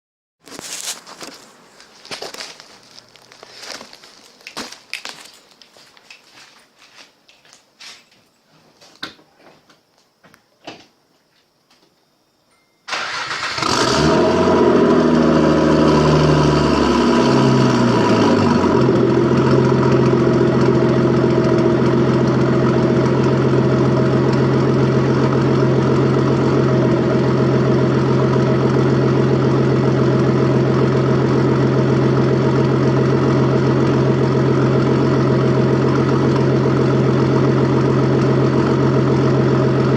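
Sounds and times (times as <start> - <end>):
car engine starting and idling: 12.9 - 39.9.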